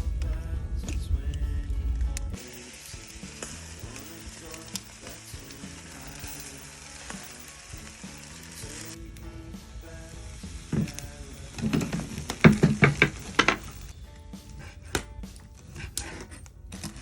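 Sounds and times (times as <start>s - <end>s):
wood fire popping and crackling: 0.0s - 17.0s
chicken sizzling on a grill: 2.3s - 13.8s.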